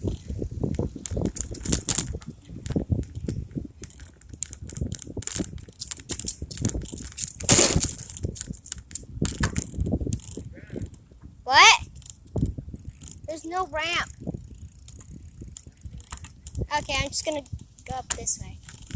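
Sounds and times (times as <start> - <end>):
tyre rumble: 0.0 - 10.9
bicycle clicking and rattling: 0.0 - 18.9.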